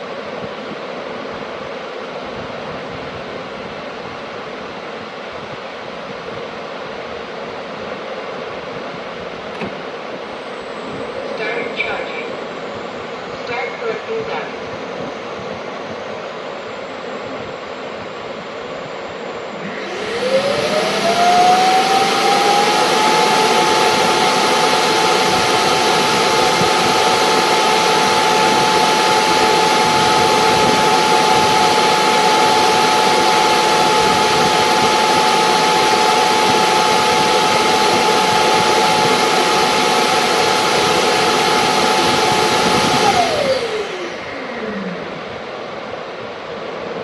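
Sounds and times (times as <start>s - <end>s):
suction motor whining: 19.6s - 45.2s.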